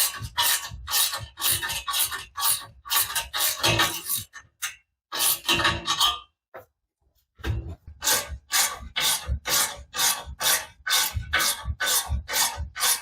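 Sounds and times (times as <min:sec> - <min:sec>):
hand tool rasping against metal: 0:00.0 - 0:06.2, 0:07.9 - 0:13.0.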